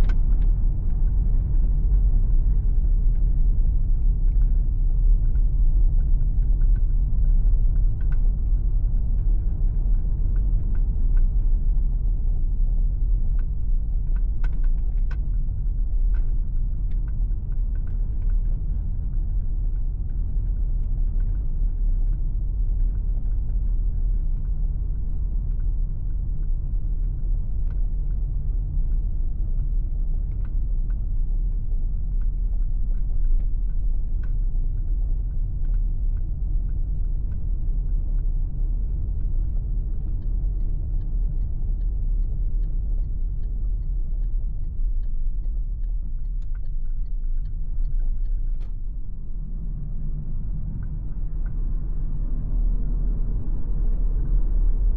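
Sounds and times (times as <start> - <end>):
tyre and wind rumble: 0.0 - 54.9
faint ticks: 29.6 - 48.9.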